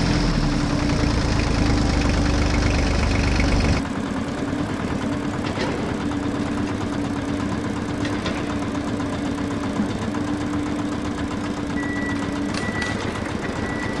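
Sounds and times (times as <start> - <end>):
toy vehicle motor hum: 0.8 - 3.8.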